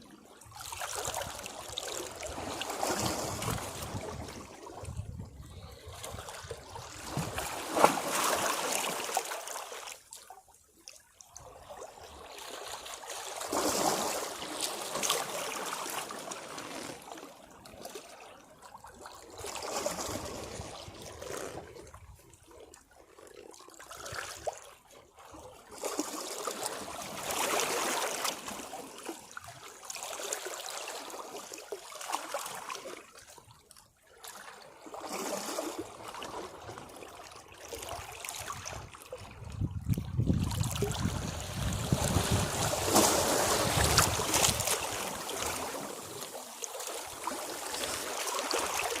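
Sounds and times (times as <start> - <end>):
sea waves washing against rocks: 40.1 - 49.0.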